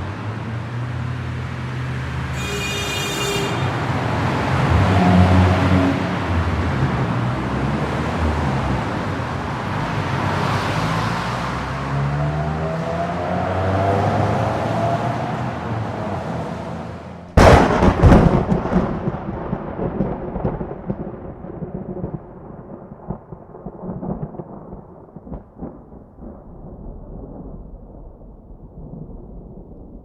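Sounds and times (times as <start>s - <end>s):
thunderclap rolling: 17.3s - 30.0s.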